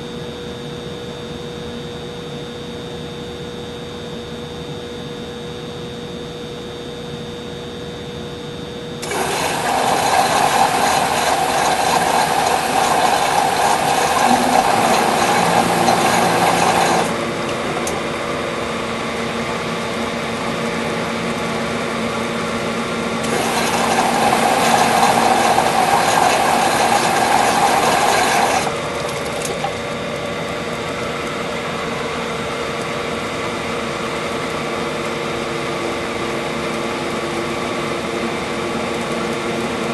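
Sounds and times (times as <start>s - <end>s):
humidifier humming: 0.0s - 39.9s
mechanical whirring: 9.0s - 18.1s.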